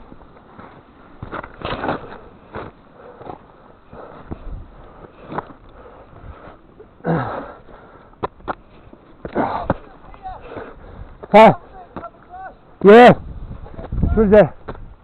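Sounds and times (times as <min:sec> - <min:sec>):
person breathing hard: 0:02.9 - 0:08.2, 0:10.4 - 0:11.2.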